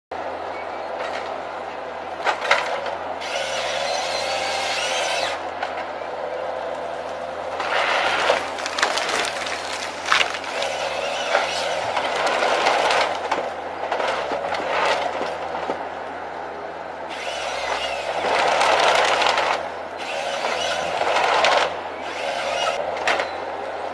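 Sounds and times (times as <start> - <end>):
wood being cut: 3.2 - 5.4, 7.6 - 13.4, 17.1 - 22.8
wood splintering cracks: 7.6 - 15.3.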